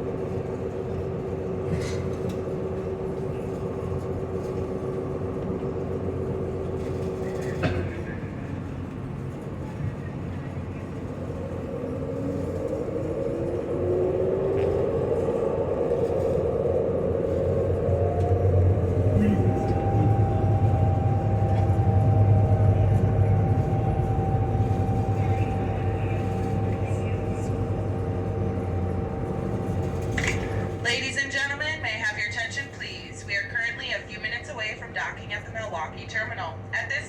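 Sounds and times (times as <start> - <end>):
ferry engines droning: 0.0 - 37.0
steady hum: 11.0 - 37.0.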